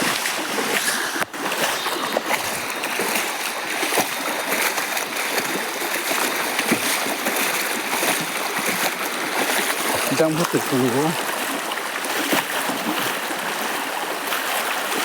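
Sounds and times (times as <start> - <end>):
water rushing and splashing: 0.0 - 15.0.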